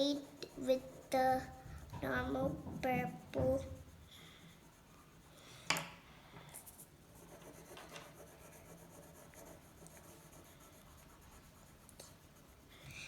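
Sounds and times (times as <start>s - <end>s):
pencil scratching on paper: 0.0s - 5.5s, 6.6s - 13.0s.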